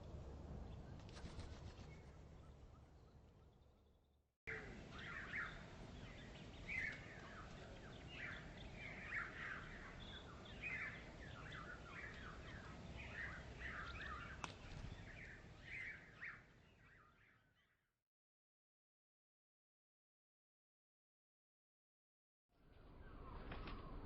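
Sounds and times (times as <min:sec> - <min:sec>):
small birds chirping: 0:00.7 - 0:17.7
faint background noise: 0:04.5 - 0:16.7.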